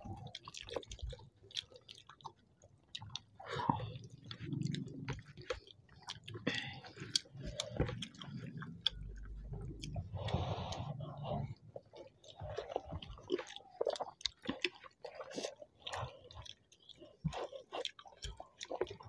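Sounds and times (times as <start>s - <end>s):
chewing soft food: 0.0s - 19.0s.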